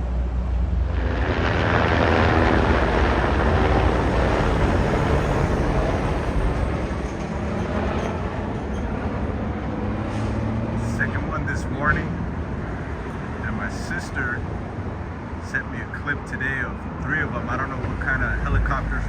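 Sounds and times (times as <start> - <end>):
steady low rumble: 0.0 - 10.0, 10.6 - 19.0
vehicle passing: 0.0 - 13.8.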